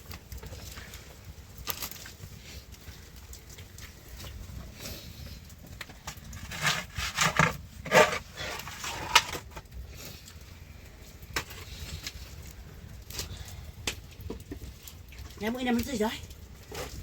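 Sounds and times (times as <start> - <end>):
knocks and scrapes: 5.7 - 9.7.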